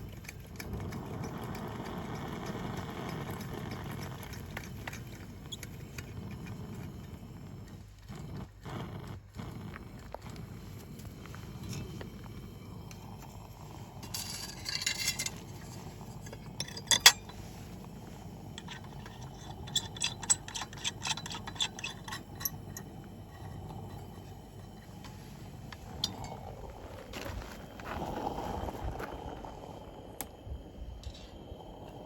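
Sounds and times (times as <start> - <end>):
glassware clinking: 16.5 - 17.3.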